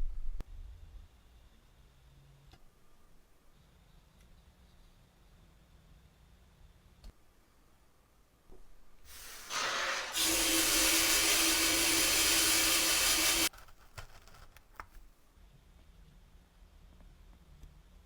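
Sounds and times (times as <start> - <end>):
loud steady hiss: 9.1 - 13.5.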